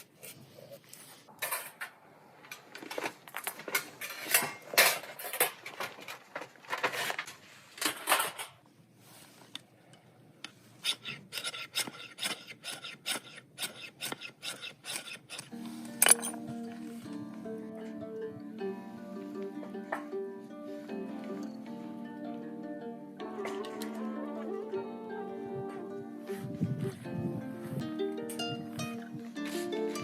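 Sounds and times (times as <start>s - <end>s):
blade scraping into wood: 10.8s - 16.4s.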